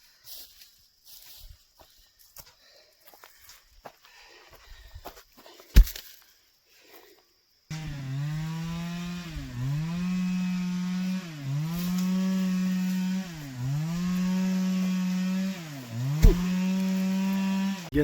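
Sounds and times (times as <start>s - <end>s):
chainsaw cutting wood: 7.7s - 17.9s.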